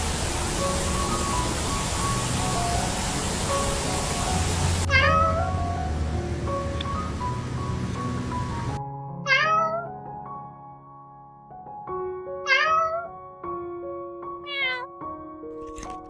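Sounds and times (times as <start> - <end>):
steady hiss: 0.0 - 8.8
soft background music: 0.0 - 16.0
cat meowing: 4.9 - 5.6, 9.2 - 9.9, 12.4 - 13.1, 14.4 - 14.9.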